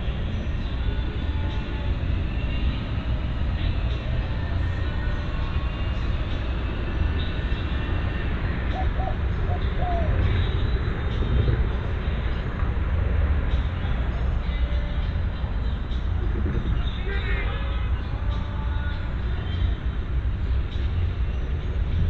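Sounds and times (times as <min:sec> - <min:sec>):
dove cooing: 0:08.6 - 0:11.4.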